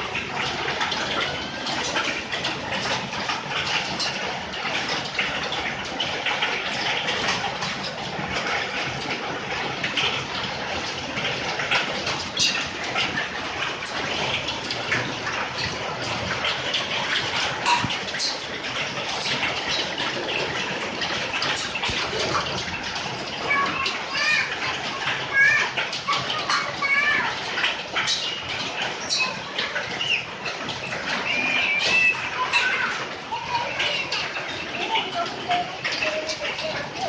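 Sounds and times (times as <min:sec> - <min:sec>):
hailstones ticking: 0:00.0 - 0:37.0
heavy rain: 0:00.0 - 0:37.0.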